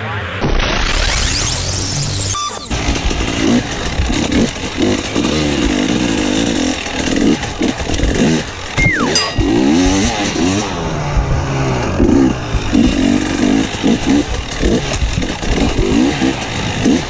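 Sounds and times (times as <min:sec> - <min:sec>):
motorcycle engine revving: 0:02.7 - 0:08.8, 0:09.5 - 0:17.0.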